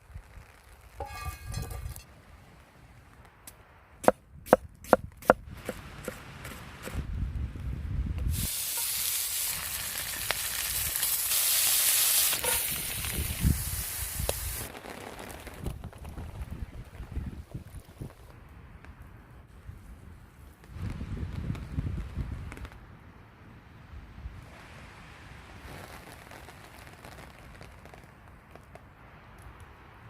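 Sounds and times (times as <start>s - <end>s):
food sizzling in hot oil: 8.3s - 14.7s.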